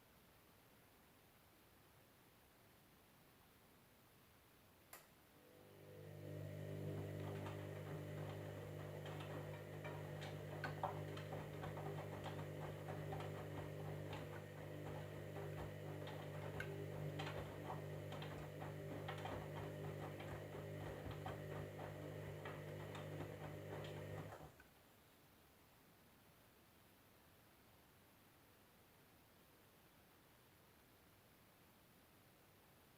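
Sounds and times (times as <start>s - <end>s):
washing machine motor humming: 5.4s - 24.6s.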